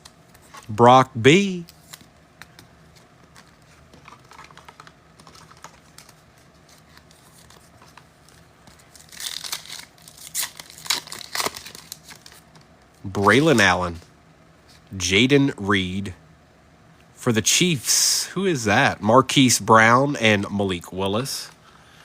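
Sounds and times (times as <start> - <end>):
trading cards handled: 0.0 - 13.7
foil wrapper crinkling and tearing: 3.0 - 12.6.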